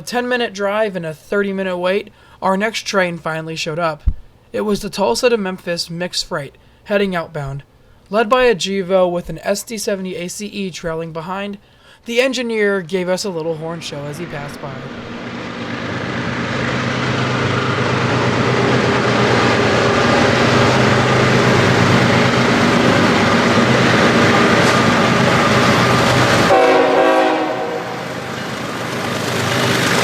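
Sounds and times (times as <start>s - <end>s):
locomotive engines: 13.1s - 30.0s
train wheels on rails: 13.8s - 30.0s
train horn: 16.0s - 28.6s.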